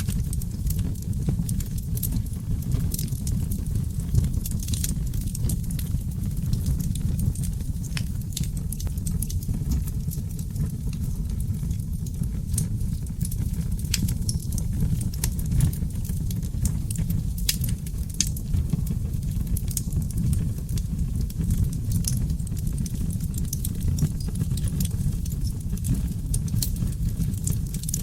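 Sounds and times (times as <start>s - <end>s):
log fire crackling and popping: 0.0s - 28.0s
low rush of flames: 0.0s - 28.0s.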